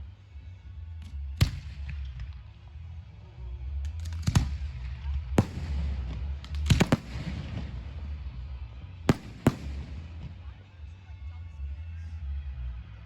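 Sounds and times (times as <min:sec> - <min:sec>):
fireworks bursting: 0:05.4 - 0:08.5, 0:09.1 - 0:10.5.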